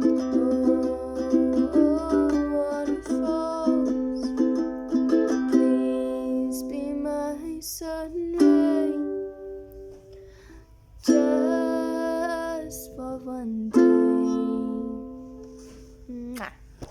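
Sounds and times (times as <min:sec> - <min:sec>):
person singing long notes: 0:00.0 - 0:04.4
strummed acoustic string instrument: 0:00.0 - 0:16.0.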